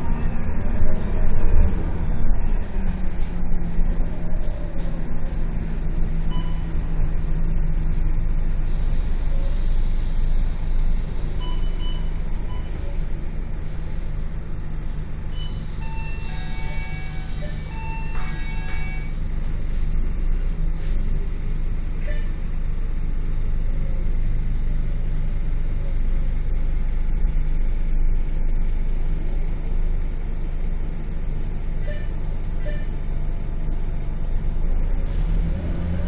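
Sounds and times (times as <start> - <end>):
bus engine droning: 0.0 - 36.0
high beeping tones: 6.2 - 6.7, 15.4 - 19.2.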